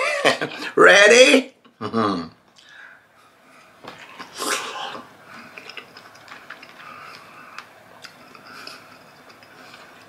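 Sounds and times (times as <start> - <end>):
close-up chewing: 4.0 - 10.0.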